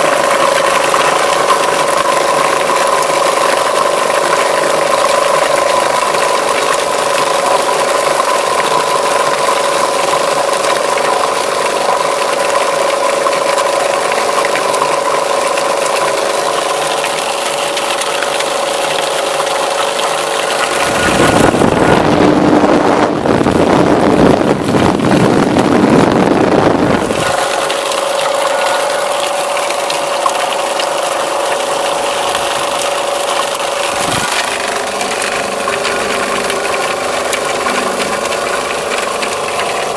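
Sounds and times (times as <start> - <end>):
loud rough crushing noise: 13.6 - 39.9.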